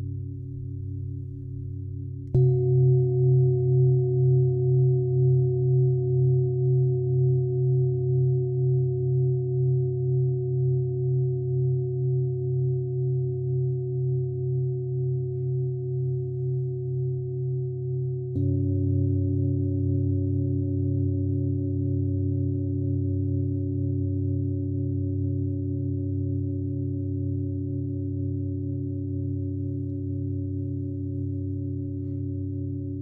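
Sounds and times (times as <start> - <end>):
singing bowl ringing: 2.3 - 25.6.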